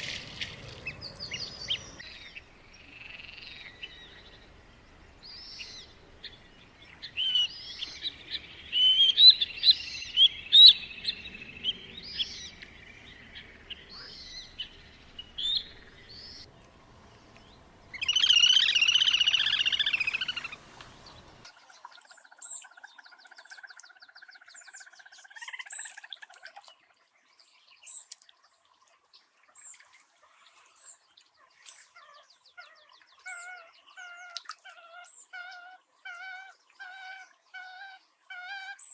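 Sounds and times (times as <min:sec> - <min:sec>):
birds chirping and singing: 0:05.2 - 0:16.5, 0:17.3 - 0:26.1.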